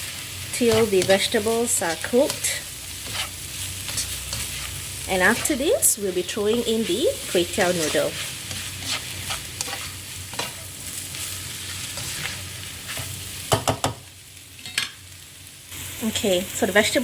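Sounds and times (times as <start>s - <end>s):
vegetables sizzling in oil: 0.0s - 17.0s
utensil scraping and knocking pan: 7.7s - 10.6s.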